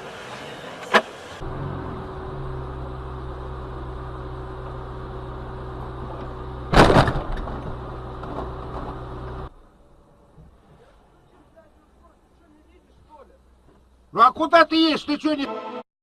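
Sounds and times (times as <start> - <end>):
car engine and cabin hum: 0.0 - 14.5
car collision crash: 6.7 - 9.0
debris clatter: 6.7 - 9.0.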